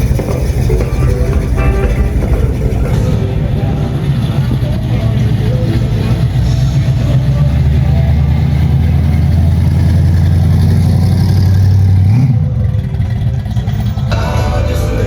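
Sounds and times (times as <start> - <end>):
music: 0.0 - 9.0, 14.0 - 15.0
car engine revving: 0.0 - 15.0.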